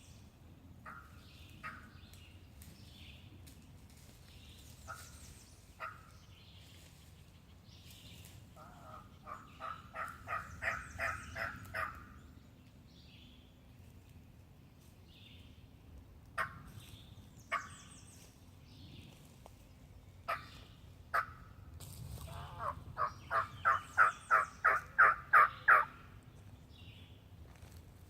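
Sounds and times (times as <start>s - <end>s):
small birds chirping: 0.9s - 27.8s
turkey call yelps: 8.6s - 12.1s, 17.5s - 17.7s, 20.3s - 21.4s, 22.3s - 26.0s.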